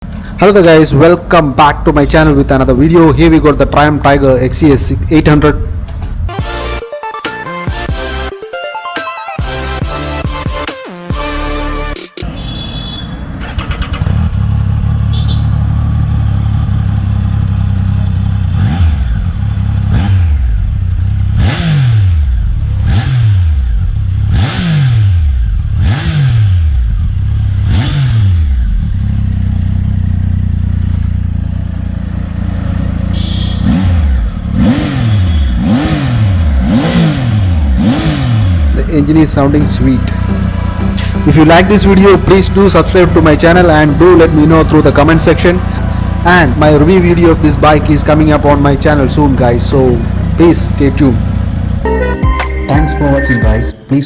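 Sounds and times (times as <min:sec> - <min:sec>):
motorcycle engine idling and revving: 0:12.2 - 0:51.9.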